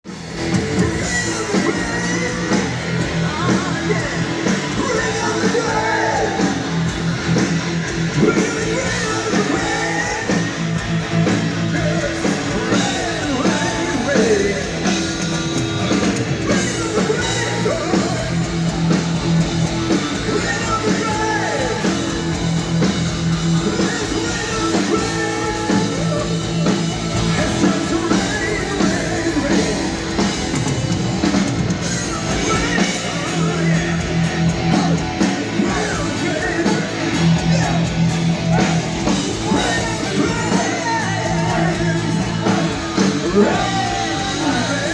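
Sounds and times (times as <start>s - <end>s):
heavy metal band playing: 0.0s - 44.9s
man yelling vocals: 1.1s - 6.6s, 20.2s - 22.1s, 32.1s - 44.9s.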